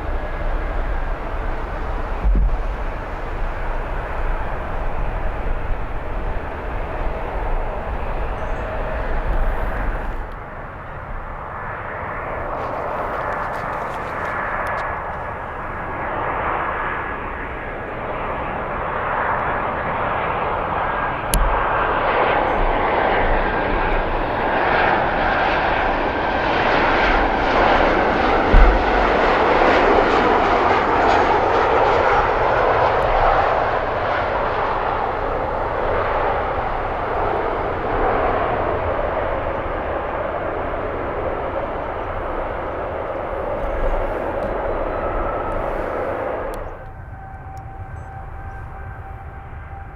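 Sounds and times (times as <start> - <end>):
low thumps: 0.0 - 10.3, 27.7 - 30.2
high engine whine: 0.0 - 49.9
jet engines passing by: 0.0 - 49.9.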